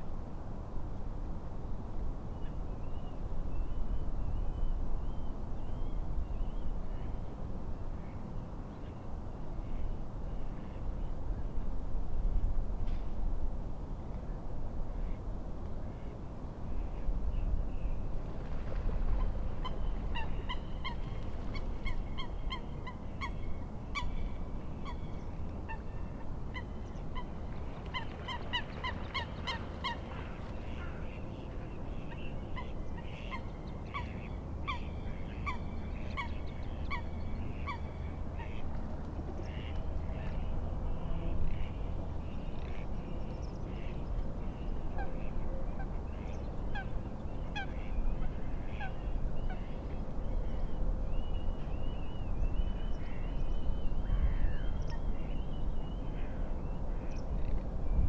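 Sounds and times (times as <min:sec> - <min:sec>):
low wind rumble: 0:09.2 - 0:58.0
water birds honking: 0:26.5 - 0:31.6
lapping waves: 0:27.2 - 0:31.2.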